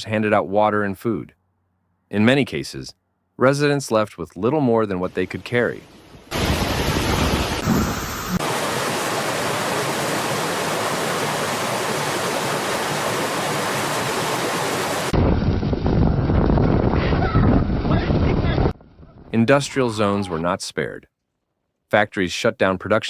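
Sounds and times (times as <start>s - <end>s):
storm wind and water roaring: 5.0s - 20.2s
wind gusts buffeting microphone: 6.4s - 19.6s.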